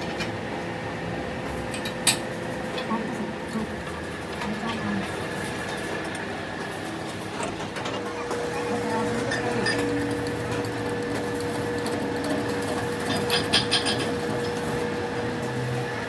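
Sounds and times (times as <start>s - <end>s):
workshop machine humming: 0.0s - 16.0s.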